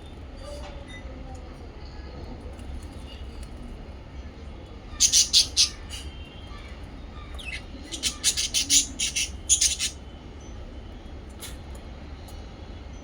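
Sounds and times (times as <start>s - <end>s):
parrots chirping shrilly: 5.0s - 6.1s, 7.4s - 10.0s.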